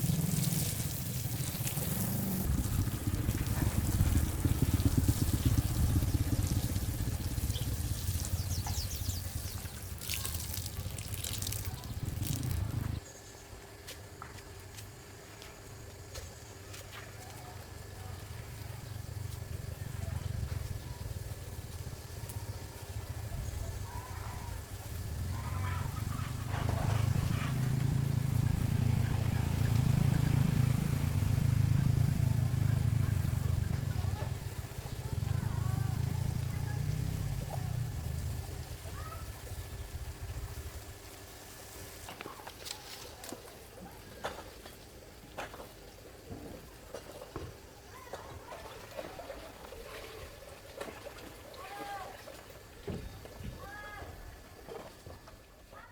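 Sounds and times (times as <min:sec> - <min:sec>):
heavy low rumble: 0:00.0 - 0:10.0, 0:10.7 - 0:13.0, 0:18.0 - 0:38.9
engine droning: 0:00.0 - 0:13.0, 0:17.5 - 0:40.9
water running and splashing: 0:00.0 - 0:13.0, 0:18.2 - 0:53.4.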